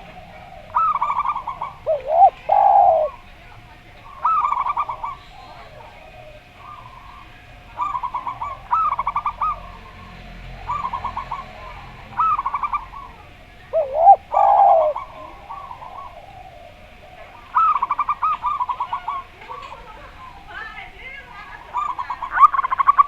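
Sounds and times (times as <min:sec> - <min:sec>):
low round dove coo: 0:00.0 - 0:03.4, 0:04.0 - 0:20.5, 0:21.4 - 0:23.0
doves cooing in staccato bursts: 0:00.0 - 0:23.0.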